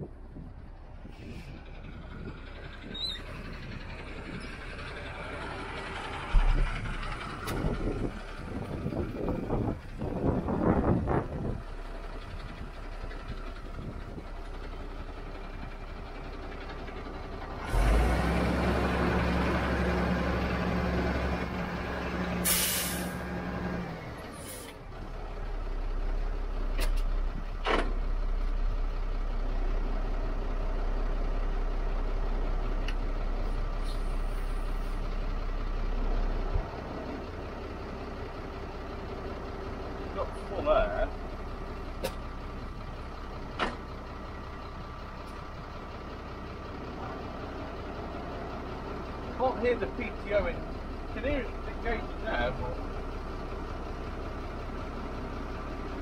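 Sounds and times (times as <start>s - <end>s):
diesel engine running: 0.0s - 56.0s
compressed air hiss: 22.4s - 23.1s.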